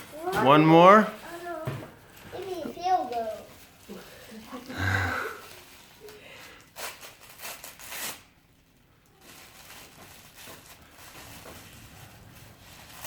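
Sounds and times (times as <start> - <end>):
packaging rustling and crinkling: 1.2 - 8.3, 9.0 - 13.0.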